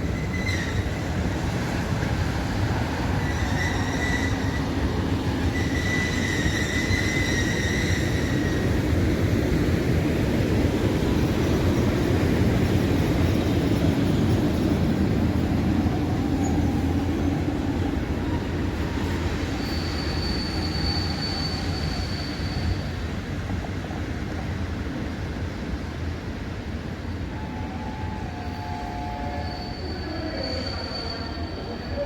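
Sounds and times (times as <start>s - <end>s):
high wheel squeal: 0.0s - 1.1s, 3.0s - 8.8s, 18.2s - 23.1s, 27.4s - 32.0s
train wheels rumbling on rails: 0.0s - 32.0s.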